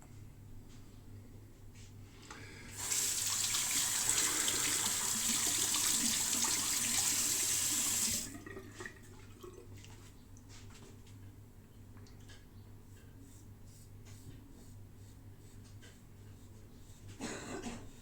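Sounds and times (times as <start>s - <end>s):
water running from tap into sink: 2.8s - 9.6s.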